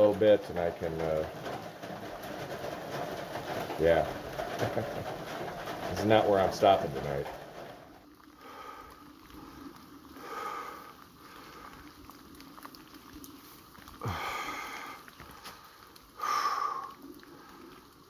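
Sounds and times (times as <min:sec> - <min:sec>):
person breathing hard: 0:08.4 - 0:11.9, 0:14.0 - 0:15.6, 0:16.2 - 0:17.0.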